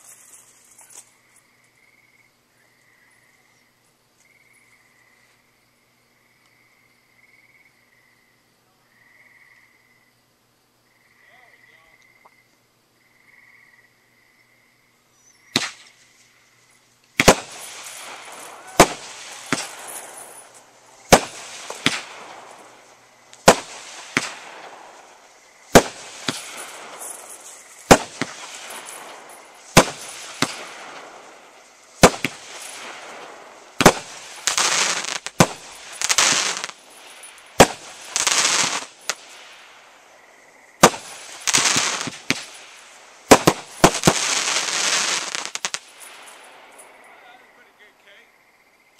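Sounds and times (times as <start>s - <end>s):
firework shots: 15.5s - 16.0s, 17.1s - 40.2s, 40.8s - 47.9s
firework crackling: 15.5s - 16.4s, 17.0s - 40.2s, 40.8s - 47.9s.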